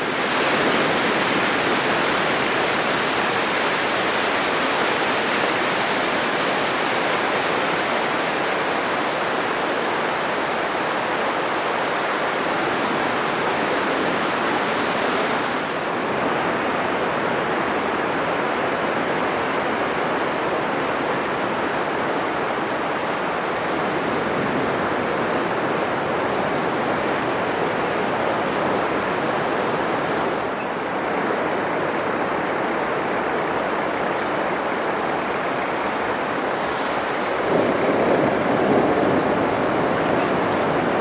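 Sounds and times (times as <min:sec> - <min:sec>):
ocean surf breaking on beach: 0:00.0 - 0:41.0.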